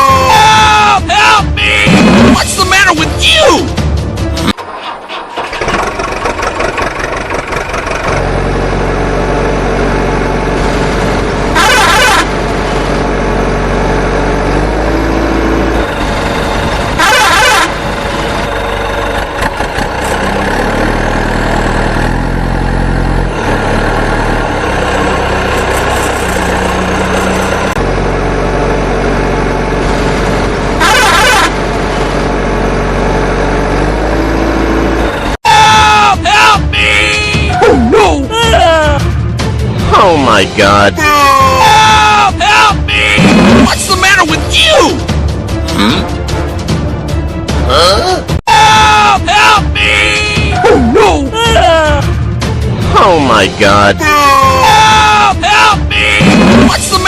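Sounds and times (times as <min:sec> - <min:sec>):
cartoon truck engine: 0:00.0 - 0:57.0
loud horn honks: 0:11.5 - 0:12.4, 0:16.9 - 0:17.9, 0:30.8 - 0:32.1.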